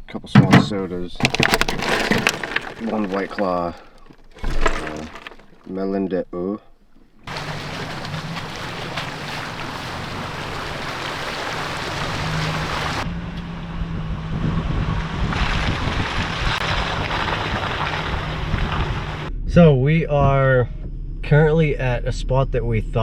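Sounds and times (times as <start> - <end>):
tyre and wind noise: 0.0 - 5.8, 7.2 - 13.1, 13.8 - 19.3
truck engine drone: 7.3 - 23.0.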